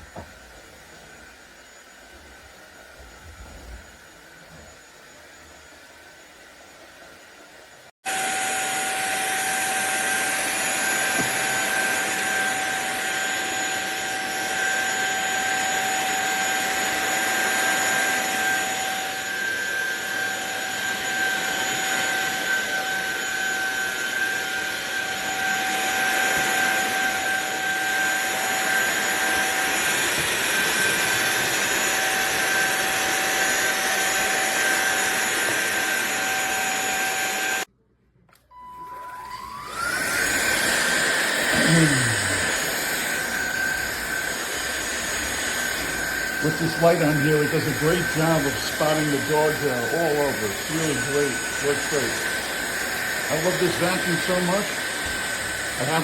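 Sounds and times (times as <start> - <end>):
vacuum cleaner motor whine: 0.0 - 37.7, 38.4 - 56.0
air rushing through vacuum head: 39.4 - 56.0.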